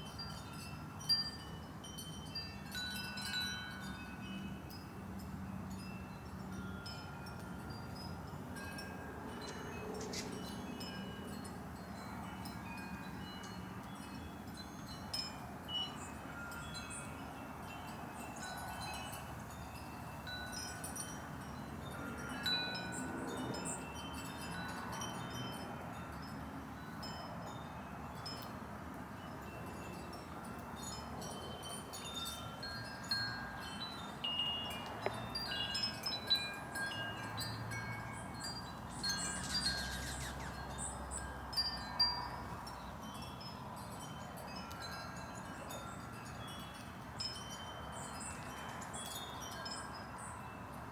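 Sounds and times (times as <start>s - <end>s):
wind chimes ringing: 0.0s - 50.9s.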